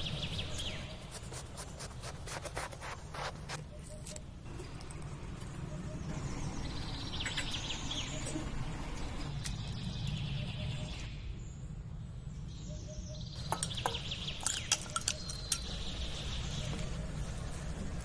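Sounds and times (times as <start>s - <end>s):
birds chirping: 12.9s - 17.1s
sharp clicks and clinks: 13.4s - 15.9s.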